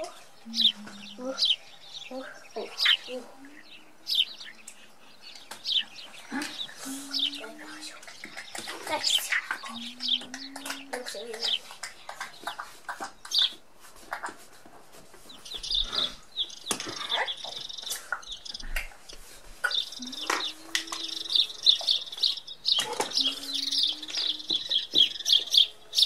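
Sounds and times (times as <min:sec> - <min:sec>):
low hum-like tone: 0:00.0 - 0:05.3
small bird chirping and twittering: 0:00.0 - 0:26.0.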